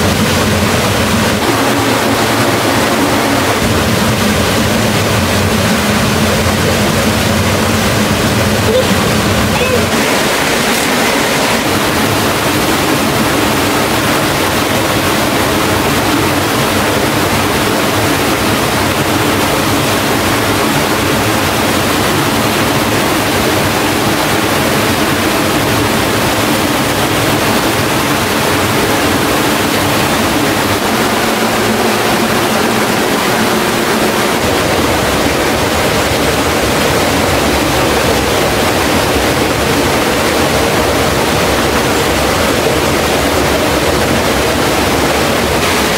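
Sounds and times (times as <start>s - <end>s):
deep rumble: 0.0s - 16.2s
waterfall rushing: 0.0s - 45.9s.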